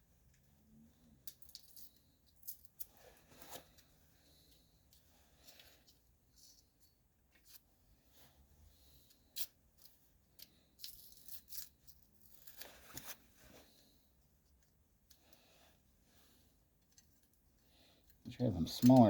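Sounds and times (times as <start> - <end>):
small metal hardware clicks and taps: 18.8 - 19.0.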